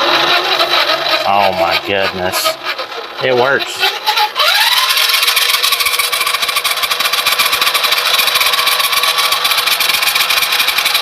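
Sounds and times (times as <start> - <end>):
toy truck electric motor whining: 0.0 - 11.0.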